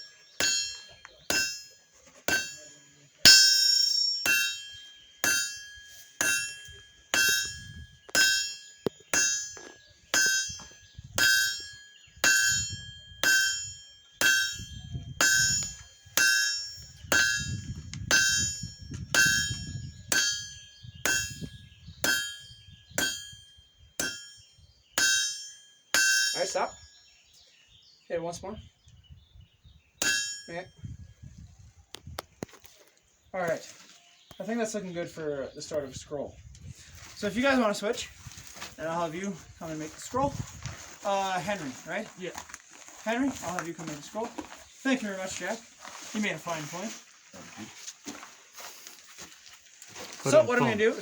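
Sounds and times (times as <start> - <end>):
hammer striking iron on anvil: 0.0 - 26.8, 30.0 - 30.7.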